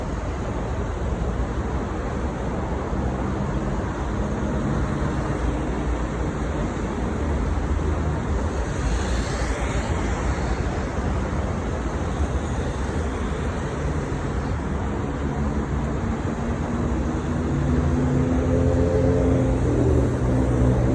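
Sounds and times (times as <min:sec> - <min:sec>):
high whine bending in pitch: 0:05.0 - 0:20.9.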